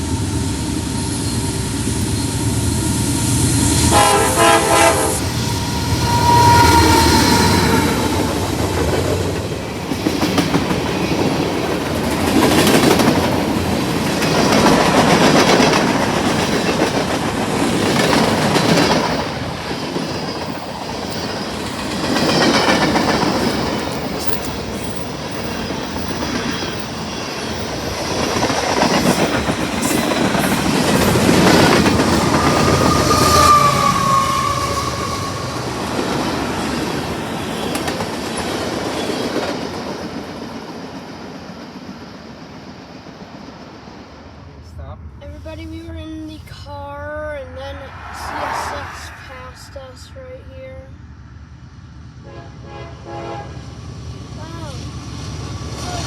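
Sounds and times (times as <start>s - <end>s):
high squeal: 0.0s - 4.0s, 5.1s - 9.5s, 19.2s - 28.0s, 31.0s - 38.0s, 47.6s - 50.0s
train wheels clacking over rails: 5.2s - 44.4s.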